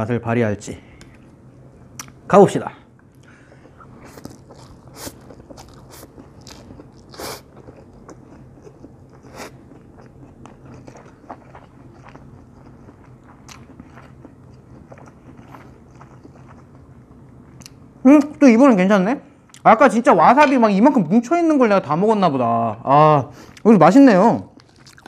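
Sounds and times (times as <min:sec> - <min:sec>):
person chewing noodles: 0:03.1 - 0:17.8, 0:24.5 - 0:25.0.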